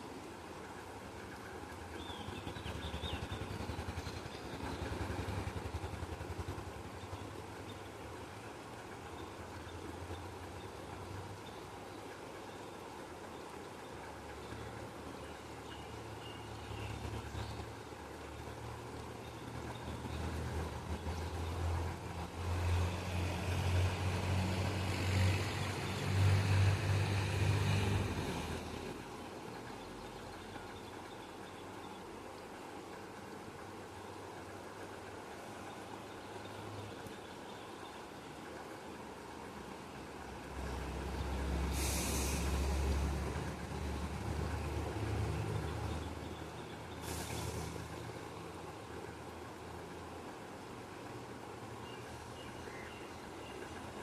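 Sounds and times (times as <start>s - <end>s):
passing motor vehicle engine: 2.2s - 7.6s, 16.0s - 29.1s, 40.2s - 52.4s
short bursts of hiss: 41.6s - 42.9s, 47.0s - 47.9s.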